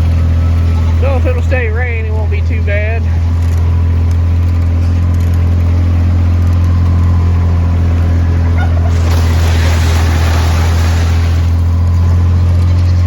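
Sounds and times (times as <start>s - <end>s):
vehicle engine droning: 0.0s - 13.0s
hissing noise: 8.9s - 11.9s.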